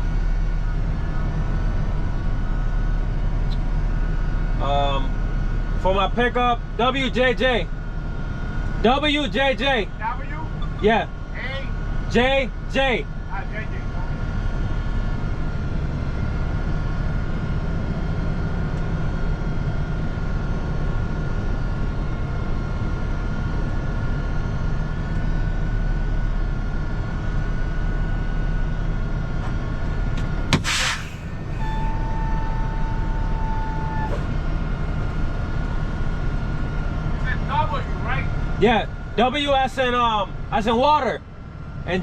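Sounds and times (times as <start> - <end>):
diesel truck engine idling: 0.0 - 42.0
short sharp hiss: 30.6 - 31.5.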